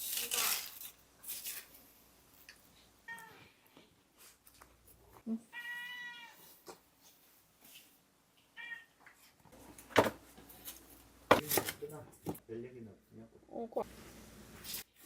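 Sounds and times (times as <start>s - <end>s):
cat meowing: 5.5s - 6.4s, 8.6s - 9.0s.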